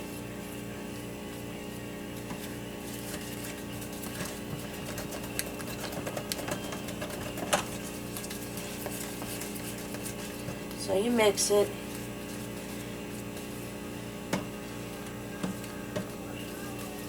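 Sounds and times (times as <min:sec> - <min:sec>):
utensil scraping mixing bowl: 0:02.8 - 0:10.9.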